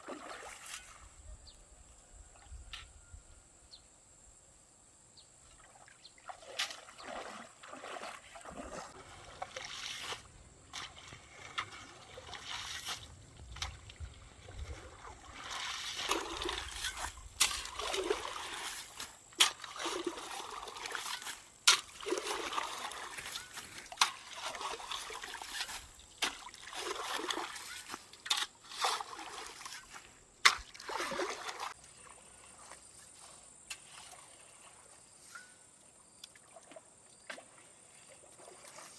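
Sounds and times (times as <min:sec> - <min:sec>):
splashing in shallow water: 0:00.0 - 0:01.2, 0:05.4 - 0:38.9
sharp water slaps: 0:15.5 - 0:29.7, 0:30.4 - 0:31.8.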